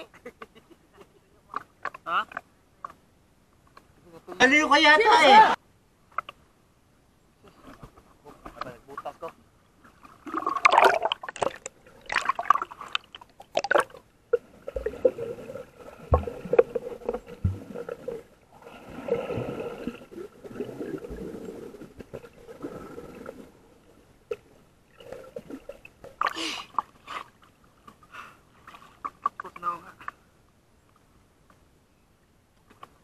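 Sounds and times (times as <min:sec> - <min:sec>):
water splashes: 0:07.6 - 0:30.2
muffled water sloshing underwater: 0:09.7 - 0:29.4.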